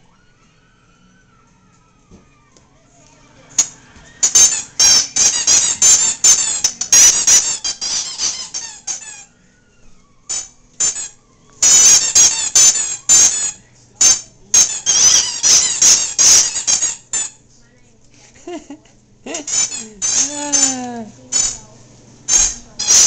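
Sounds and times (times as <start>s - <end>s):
squeaky toy squeaking: 3.6s - 9.3s, 10.3s - 17.4s, 19.4s - 21.6s, 22.3s - 23.0s.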